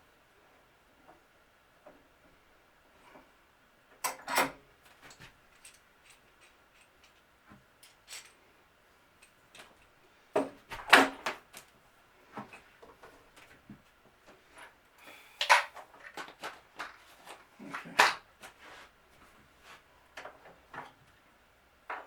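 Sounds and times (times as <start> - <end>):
tools clicking and knocking: 5.1 - 8.4.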